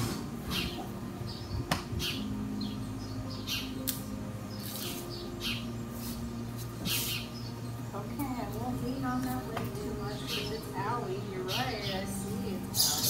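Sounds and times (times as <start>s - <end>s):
small birds chirping: 0.4s - 13.0s
sharp click: 3.8s - 4.0s.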